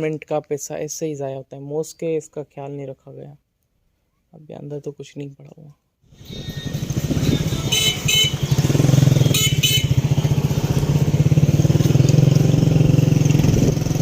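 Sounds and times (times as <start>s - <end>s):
motorcycle engine running: 6.2s - 14.0s.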